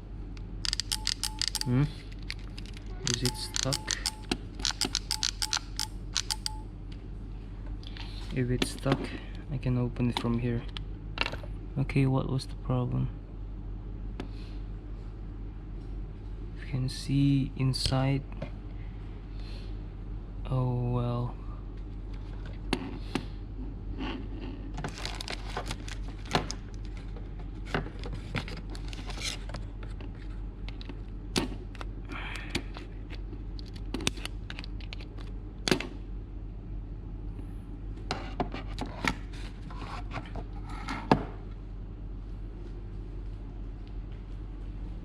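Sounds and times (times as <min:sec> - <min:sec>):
steady low hum: 0:00.0 - 0:45.0
clicks and taps: 0:03.1 - 0:06.6
plastic rustles and scrapes: 0:24.0 - 0:30.4.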